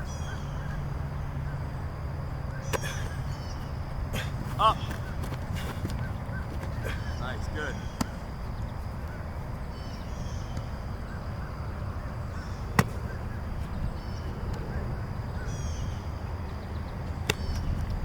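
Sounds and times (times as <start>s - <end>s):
birds chirping: 0.0s - 18.0s
sharp smack: 17.3s - 17.6s.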